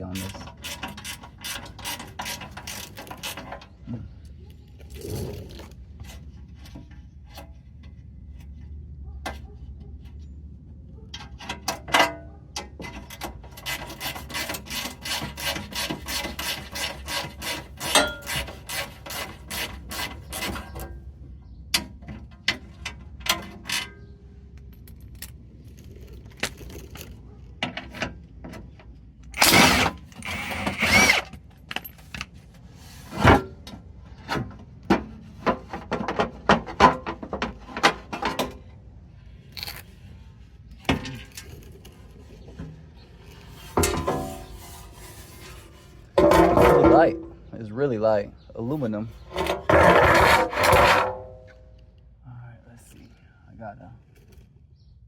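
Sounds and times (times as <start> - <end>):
metal scrapes: 39.4 - 47.7, 48.6 - 51.8.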